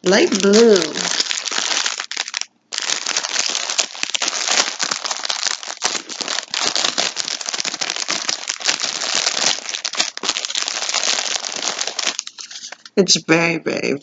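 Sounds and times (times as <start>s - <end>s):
packaging crinkling: 0.0s - 12.9s.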